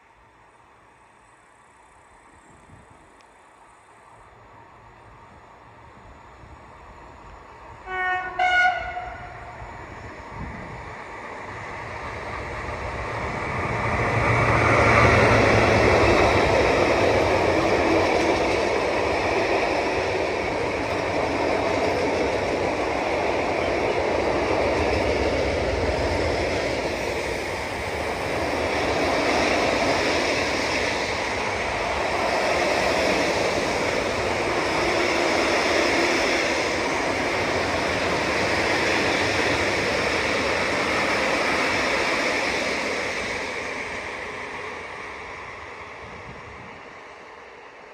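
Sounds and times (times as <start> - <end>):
train passing with rumbling wheels: 0.0 - 47.9
train horn blasts: 7.8 - 9.6.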